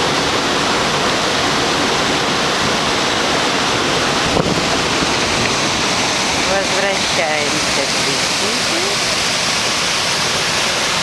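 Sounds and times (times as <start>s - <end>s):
river water over stones: 0.0s - 11.0s.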